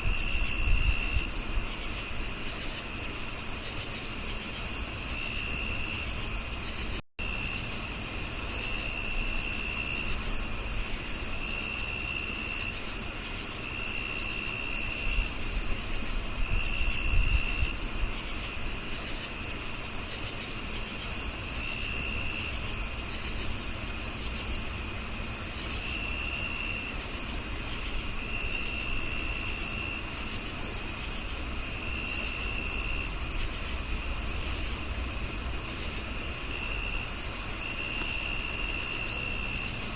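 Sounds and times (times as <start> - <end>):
crickets chirping: 0.0 - 39.9
lower cricket trills: 0.0 - 39.9.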